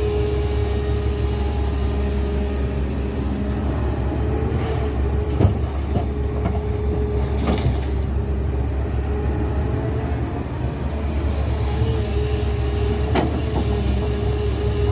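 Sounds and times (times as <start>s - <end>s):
diesel engine running: 0.0s - 14.9s
engine whine: 0.0s - 14.9s.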